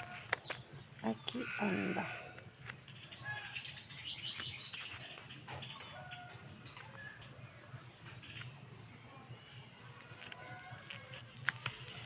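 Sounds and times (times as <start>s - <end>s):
birds chirping and whistling: 0.0s - 8.6s.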